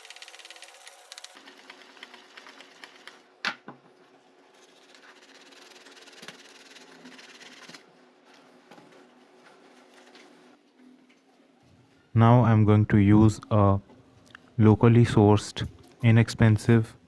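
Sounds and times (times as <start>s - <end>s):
shaving brush rubbing on soap: 4.6s - 7.8s.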